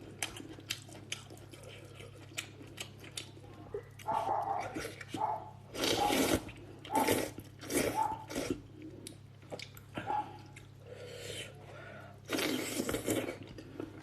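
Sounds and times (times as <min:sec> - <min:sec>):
chewing: 0:00.0 - 0:11.5
noodles being slurped: 0:04.7 - 0:08.6, 0:12.2 - 0:14.0.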